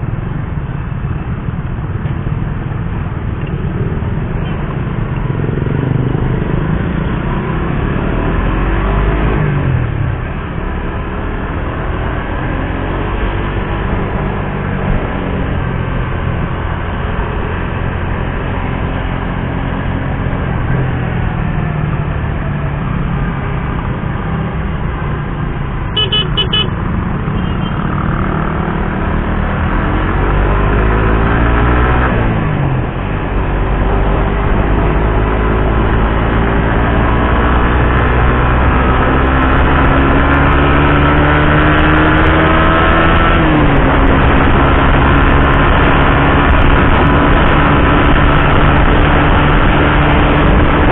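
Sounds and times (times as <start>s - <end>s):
motorcycle engine revving: 3.5s - 50.9s
horn toot: 25.9s - 27.8s.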